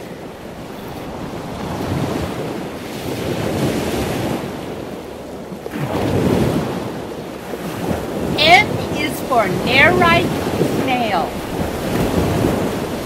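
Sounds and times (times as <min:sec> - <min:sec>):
ocean surf rushing: 0:00.0 - 0:13.0.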